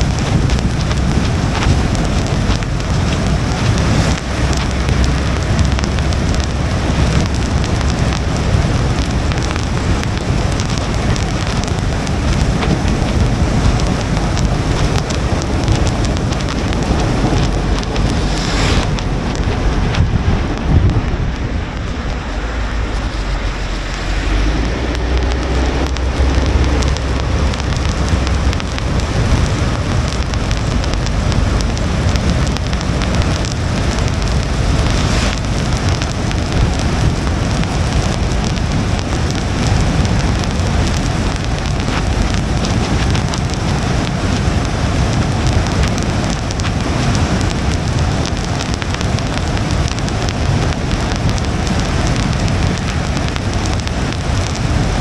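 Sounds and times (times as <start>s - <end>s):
low road rumble: 0.0s - 55.0s
rain on car windshield: 0.0s - 55.0s.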